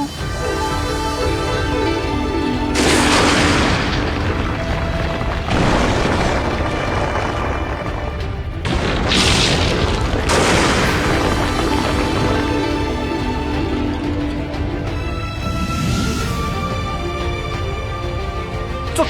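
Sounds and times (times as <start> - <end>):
dramatic soundtrack music: 0.0 - 19.0
booming blast and impact effects: 2.7 - 16.5.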